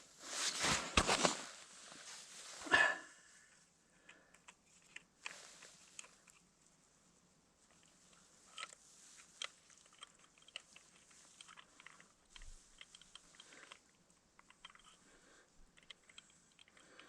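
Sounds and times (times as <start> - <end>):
hands handling gear clicking: 4.1 - 6.4, 7.7 - 17.0.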